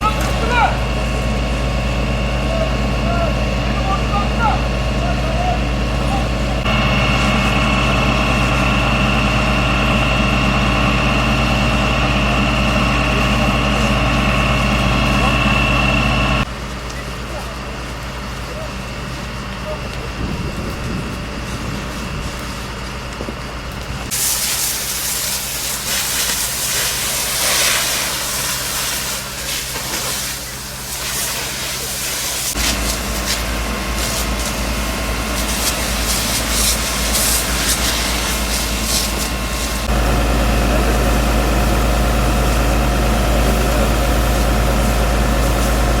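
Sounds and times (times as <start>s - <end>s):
high whine: 0.0s - 17.1s, 32.5s - 46.0s
heavy engine running: 0.0s - 46.0s
water spraying from fire hose: 0.0s - 46.0s.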